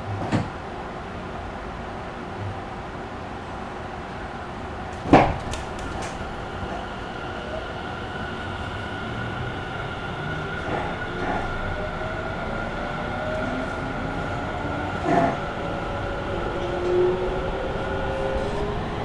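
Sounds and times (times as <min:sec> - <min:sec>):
train running: 0:00.0 - 0:19.0
rising motor tone: 0:08.3 - 0:19.0.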